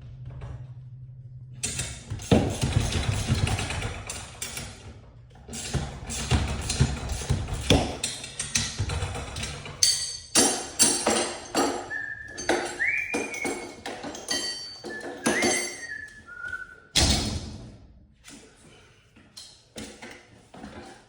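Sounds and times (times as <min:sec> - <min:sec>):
clinks and knocks: 0:05.6 - 0:16.3
short whistle-like notes: 0:11.6 - 0:13.9, 0:14.8 - 0:16.9.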